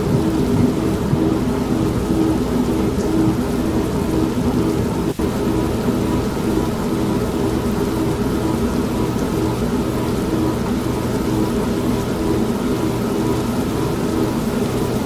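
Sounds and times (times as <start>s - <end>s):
rumbling thunder: 0.0s - 5.0s
heavy rain: 0.0s - 15.0s
washing machine humming: 0.0s - 15.0s.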